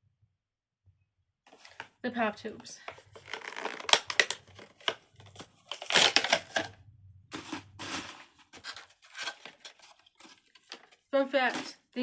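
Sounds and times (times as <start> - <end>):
plastic pop tubes crackling: 2.8 - 6.8.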